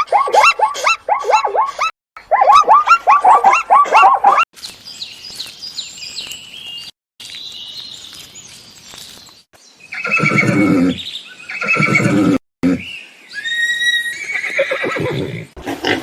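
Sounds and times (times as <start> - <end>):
horse whinnying: 10.0 - 12.8, 13.4 - 15.6.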